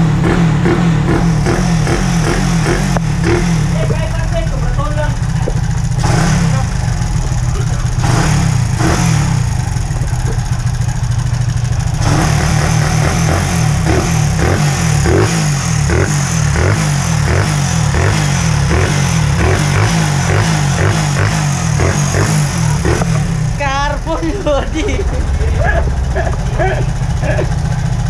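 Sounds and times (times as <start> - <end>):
engine mechanical clatter: 0.0 - 28.0
motorcycle engine running loudly: 0.0 - 28.0.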